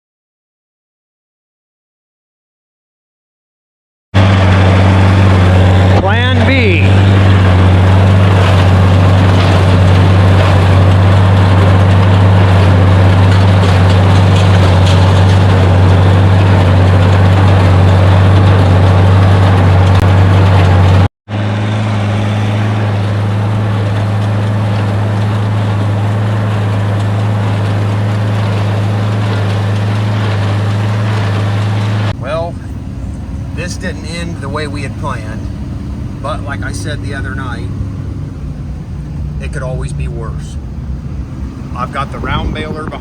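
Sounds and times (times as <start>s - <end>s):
tractor engine running: 4.2s - 43.0s.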